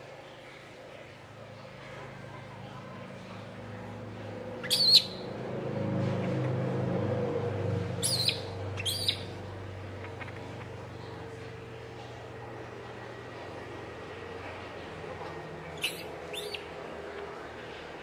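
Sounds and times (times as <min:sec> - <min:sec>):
baby monkey screaming: 0:04.6 - 0:05.3, 0:08.0 - 0:09.3, 0:15.8 - 0:16.7.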